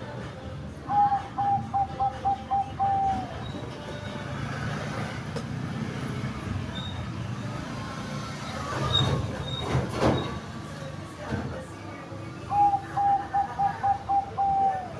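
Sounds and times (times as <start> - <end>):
dove cooing: 0.8 - 3.5, 12.5 - 14.9.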